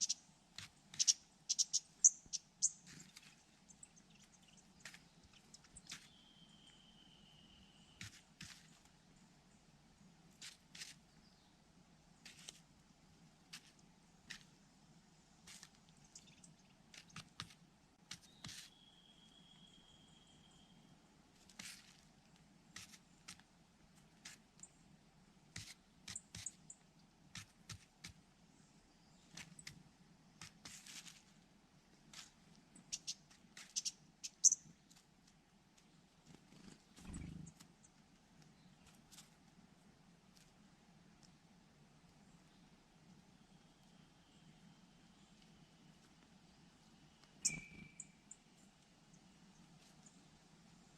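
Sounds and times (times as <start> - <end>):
birds clicking and chirping: 0.0 - 6.8, 15.5 - 17.5, 32.2 - 35.0, 36.2 - 39.0, 47.2 - 48.8
faint scattered ticks: 0.0 - 9.0, 32.0 - 39.5
high whistled bird call: 47.4 - 48.2.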